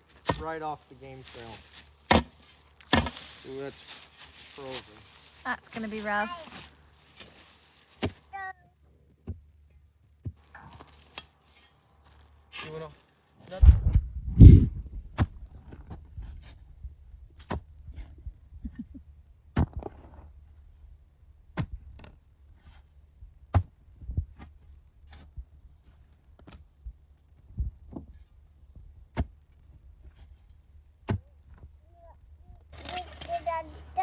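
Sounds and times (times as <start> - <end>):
digging tool striking frozen ground: 2.1 - 3.2, 13.5 - 16.8, 19.6 - 20.3, 21.6 - 28.2, 31.1 - 31.7.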